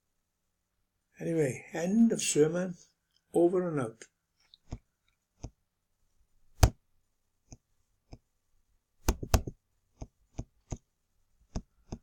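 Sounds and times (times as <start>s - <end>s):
computer mouse clicking: 9.0s - 10.8s.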